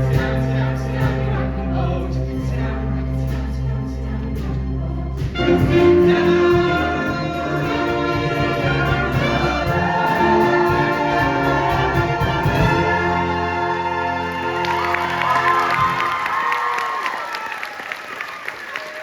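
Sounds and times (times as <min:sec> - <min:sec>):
band with brass: 0:00.0 - 0:16.9
cast singing in chorus: 0:05.4 - 0:15.9.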